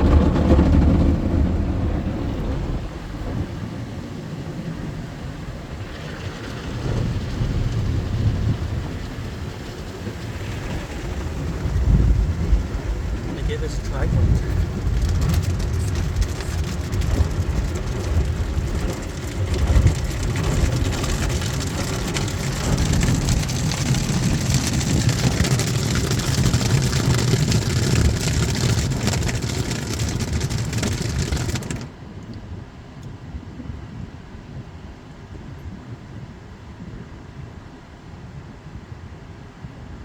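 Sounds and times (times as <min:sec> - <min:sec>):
car wash water spray: 0:00.0 - 0:31.9.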